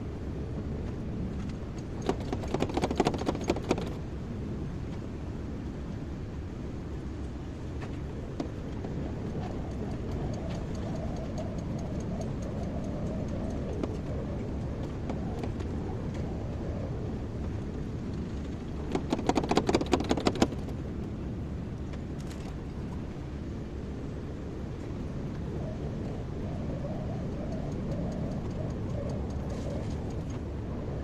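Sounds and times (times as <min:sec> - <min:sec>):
quick knocks and clicks: 0:18.9 - 0:20.7.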